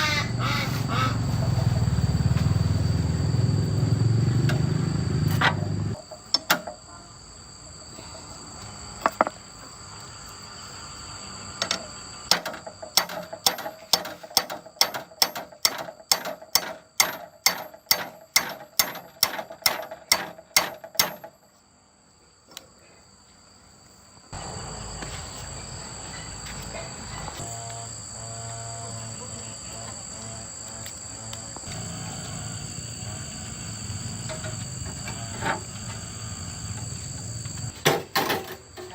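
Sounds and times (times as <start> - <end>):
steady hum: 24.4 - 37.8.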